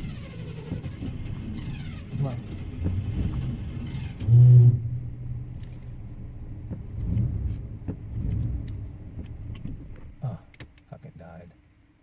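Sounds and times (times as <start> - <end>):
car engine cranking and running: 0.0 - 10.8
keys jangling: 5.5 - 6.0.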